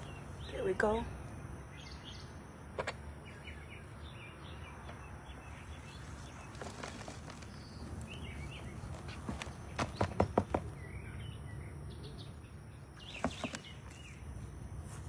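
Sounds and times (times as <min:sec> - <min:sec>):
small birds chirping: 0:00.0 - 0:14.7.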